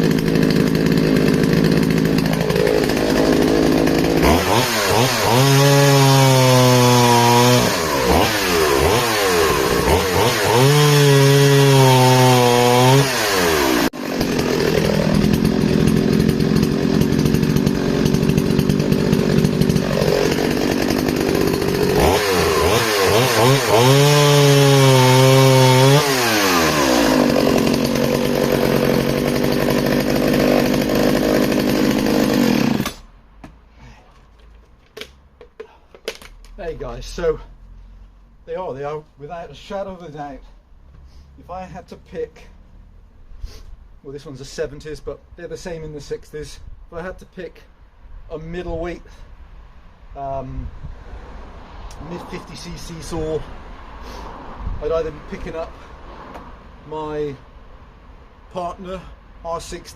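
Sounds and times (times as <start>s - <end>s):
chainsaw engine idling and revving: 0.0s - 33.1s, 51.9s - 54.2s.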